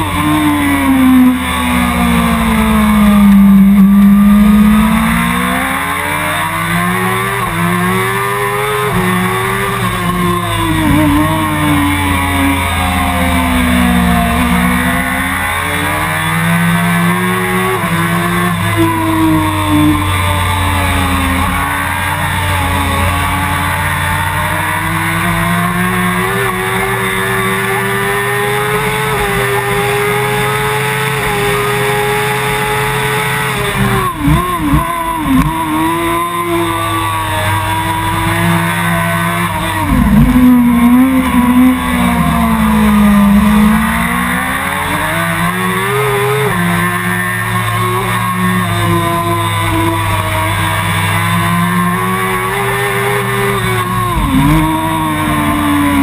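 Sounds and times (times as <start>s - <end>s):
motorcycle engine at high revs: 0.0s - 56.0s.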